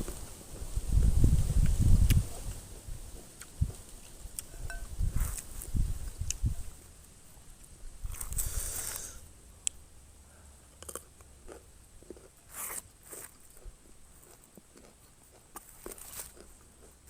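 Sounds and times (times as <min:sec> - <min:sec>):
person biting and chewing food: 0:01.6 - 0:02.5, 0:03.4 - 0:06.5, 0:08.0 - 0:09.8, 0:10.7 - 0:17.0.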